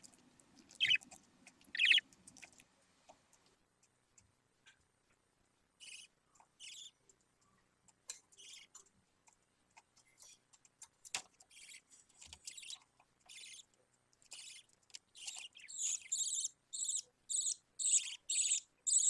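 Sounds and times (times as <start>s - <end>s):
budgerigar chick chirping: 0.7s - 1.1s, 1.7s - 2.0s, 15.2s - 19.0s.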